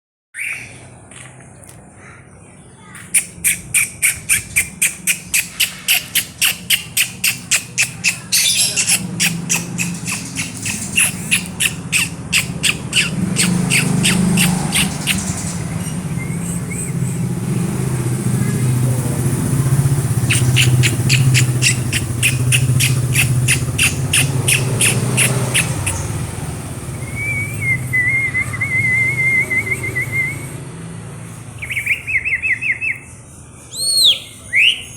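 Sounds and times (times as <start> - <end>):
bird calling in sharp chips: 2.8 - 17.2, 20.1 - 26.3
wavering bird whistle: 3.2 - 17.2, 20.3 - 26.1, 26.9 - 30.6, 31.6 - 33.1, 33.7 - 34.9.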